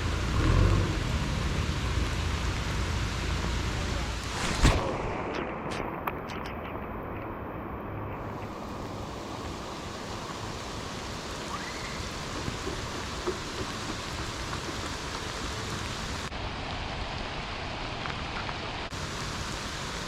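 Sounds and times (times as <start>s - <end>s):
steady rain hiss: 0.0s - 20.0s
raindrop ticks: 8.1s - 16.3s.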